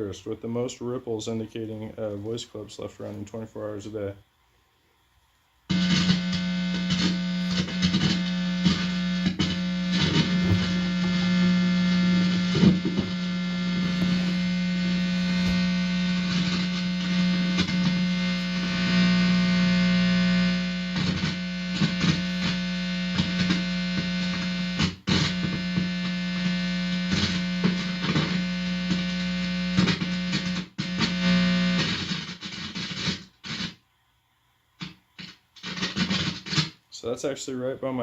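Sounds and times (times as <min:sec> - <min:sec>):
guitar amplifier buzzing hum: 0:05.6 - 0:33.8, 0:34.8 - 0:36.8
cable plug crackles and clicks: 0:05.7 - 0:33.7.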